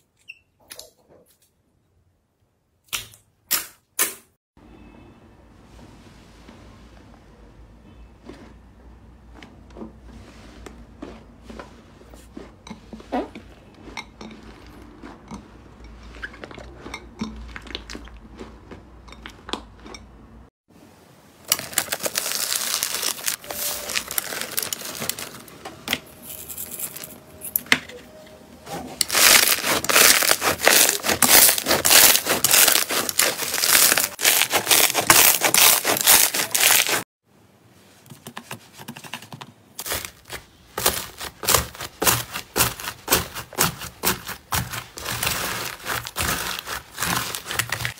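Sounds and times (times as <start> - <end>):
dense slime crackling: 21.5 - 25.4, 29.0 - 37.0, 39.8 - 47.9.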